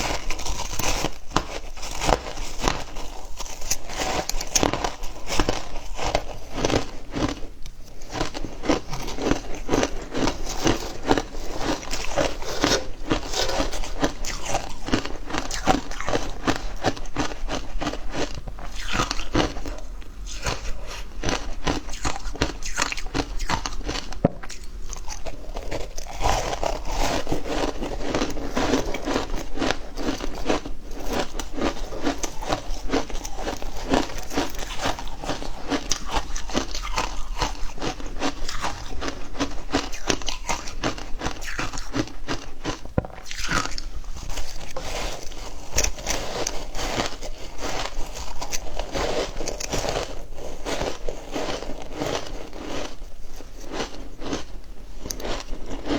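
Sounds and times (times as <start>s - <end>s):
crunching ice chewing: 0.0s - 55.9s.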